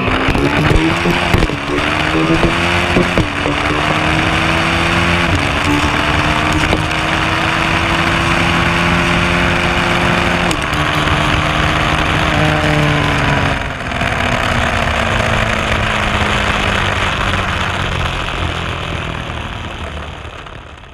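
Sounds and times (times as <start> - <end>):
motorcycle engine accelerating: 0.0 - 20.9
wind noise on camera: 0.0 - 20.9.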